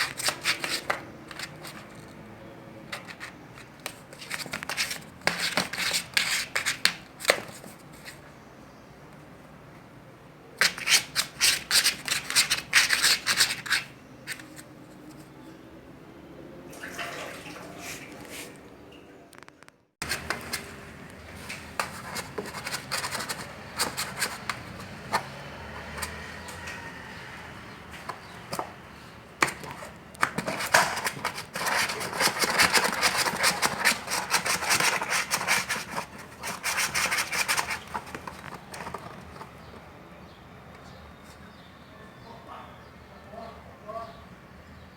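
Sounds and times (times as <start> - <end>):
kitten scratching with claws: 0.0 - 2.2, 2.9 - 8.2, 10.6 - 15.4, 19.6 - 28.8, 29.4 - 39.8.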